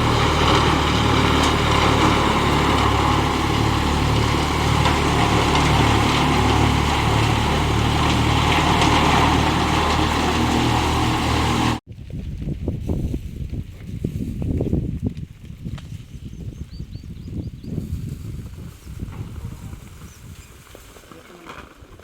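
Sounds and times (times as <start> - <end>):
engine running: 0.0 - 11.8.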